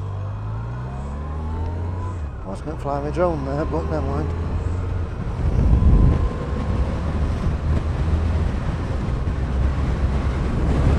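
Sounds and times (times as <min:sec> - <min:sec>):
motorcycle engine rumble: 0:00.0 - 0:10.9
wind noise on microphone: 0:04.4 - 0:10.9.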